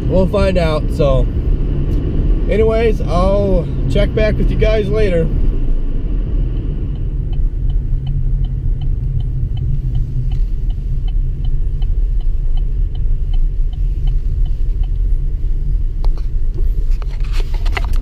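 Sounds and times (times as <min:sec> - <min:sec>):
road rumble inside vehicle: 0:00.0 - 0:18.0
turn signal clicking: 0:05.4 - 0:18.0.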